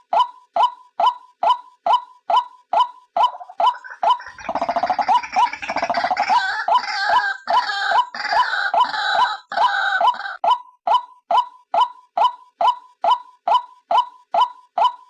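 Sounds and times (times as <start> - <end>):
rapid gurgling trill: 3.3 - 7.2
harsh croaking notes: 3.3 - 10.4.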